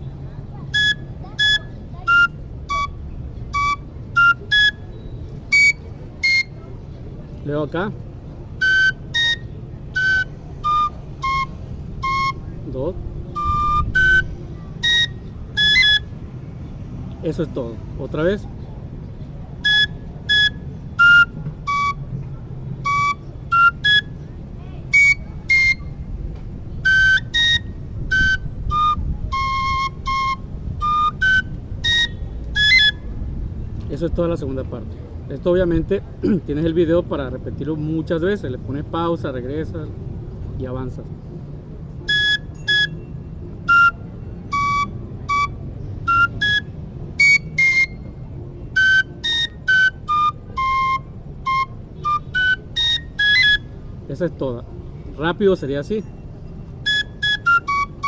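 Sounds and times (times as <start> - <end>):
steady low rumble: 0.0 - 37.6
high-pitched flute melody: 0.5 - 6.8, 8.4 - 16.4, 19.2 - 33.2, 41.9 - 54.1, 55.9 - 58.0.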